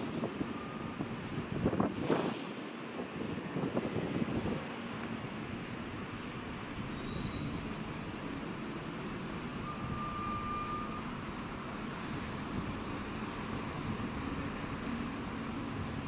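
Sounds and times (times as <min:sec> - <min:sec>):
high-pitched wheel squeal: 0:06.8 - 0:11.3.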